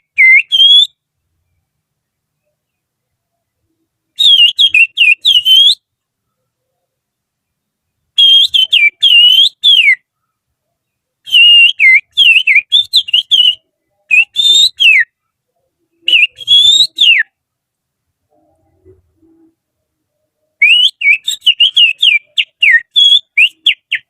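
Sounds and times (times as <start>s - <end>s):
finger whistling birdsong: 0.0s - 1.0s, 4.2s - 5.8s, 8.2s - 10.0s, 11.3s - 15.1s, 16.0s - 17.3s, 20.6s - 24.0s.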